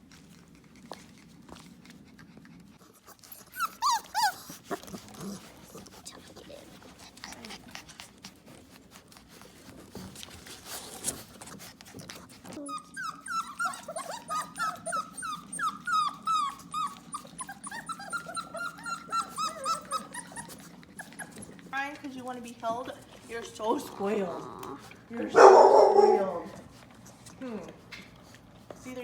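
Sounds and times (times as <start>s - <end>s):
puppy whimpering: 2.6s - 21.8s, 23.3s - 26.7s.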